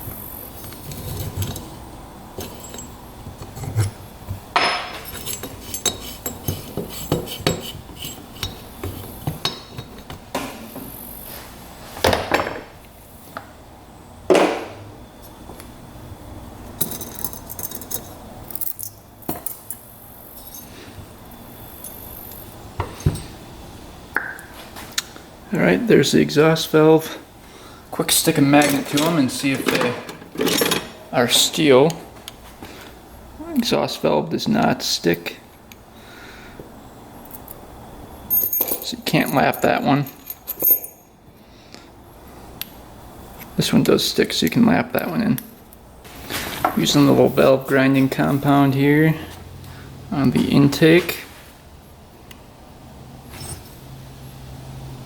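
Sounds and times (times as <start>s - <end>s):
metal parts clinking: 2.4s - 10.2s, 16.8s - 20.7s, 28.4s - 31.6s, 38.3s - 41.1s, 53.3s - 53.8s.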